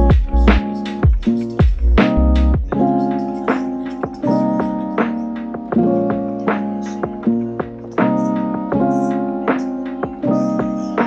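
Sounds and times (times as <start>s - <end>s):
thumping kick drum: 0.0s - 2.9s
keyboard music with beat: 0.0s - 11.0s.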